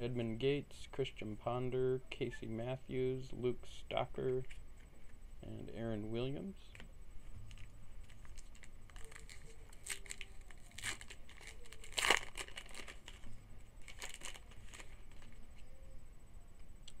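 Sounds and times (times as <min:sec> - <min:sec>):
card pack wrapper tearing and crinkling: 0:07.5 - 0:15.4.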